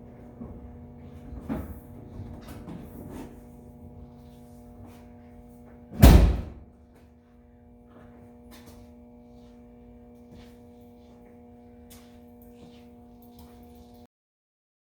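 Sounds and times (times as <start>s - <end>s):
steady hum: 0.0s - 14.1s
loud slam: 6.0s - 6.6s.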